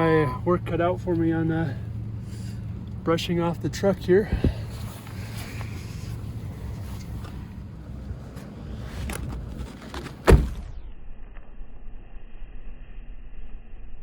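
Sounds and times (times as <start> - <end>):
low rumble: 0.0 - 14.0
loud thunk: 10.2 - 10.8.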